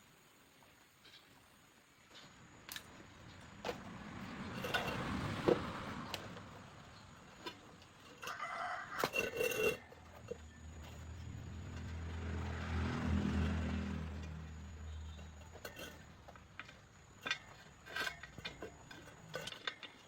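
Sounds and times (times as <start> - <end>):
rooster crowing: 8.2 - 10.1.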